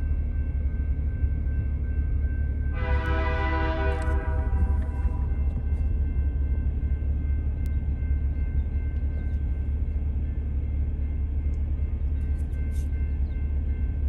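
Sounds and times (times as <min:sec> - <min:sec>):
locomotive engine rumble: 0:00.0 - 0:14.0
train horn chord: 0:02.7 - 0:05.4.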